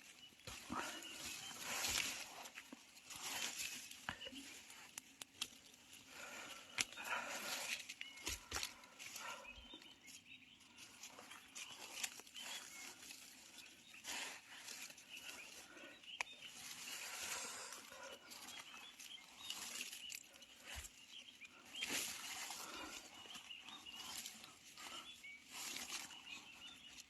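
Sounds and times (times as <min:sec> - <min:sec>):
rustling leaf litter: 0:00.0 - 0:27.0
sharp snaps of twigs: 0:04.2 - 0:05.8.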